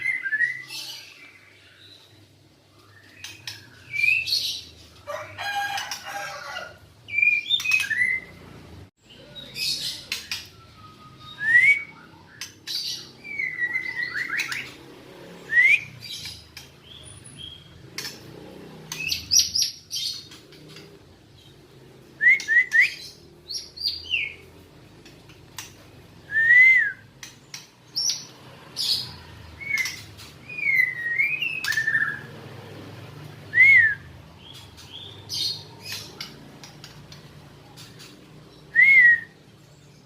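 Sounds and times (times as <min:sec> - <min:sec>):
bird whistled notes and chirps: 0:00.0 - 0:01.9, 0:02.8 - 0:04.7, 0:07.1 - 0:08.4, 0:09.4 - 0:14.8, 0:15.4 - 0:17.7, 0:22.2 - 0:24.4, 0:26.2 - 0:29.0, 0:29.6 - 0:32.3, 0:38.0 - 0:39.4.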